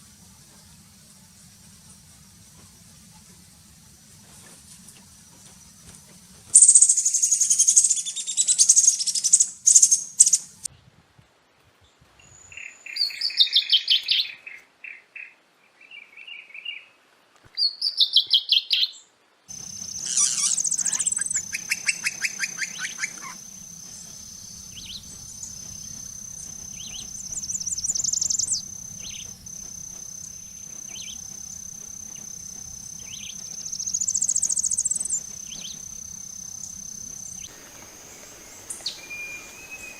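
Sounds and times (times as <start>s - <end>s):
songbirds singing: 0.0s - 10.7s, 17.6s - 39.9s
high-pitched insect drone: 19.5s - 39.9s.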